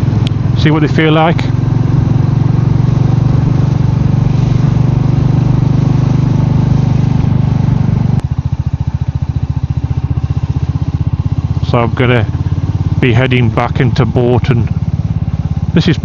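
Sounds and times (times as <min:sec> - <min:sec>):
motorcycle engine running: 0:00.0 - 0:16.0
wind and road hiss: 0:02.1 - 0:07.9.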